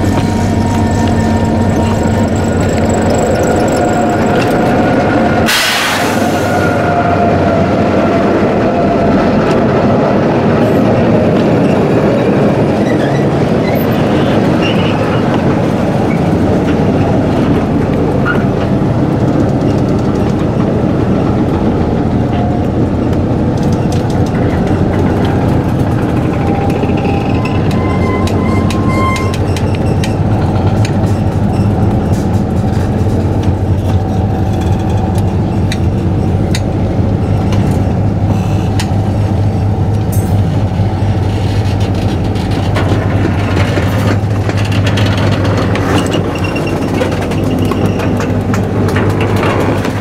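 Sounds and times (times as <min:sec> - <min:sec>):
locomotive engine humming: 0:00.0 - 0:50.0
wheels clattering over rail joint: 0:40.0 - 0:50.0.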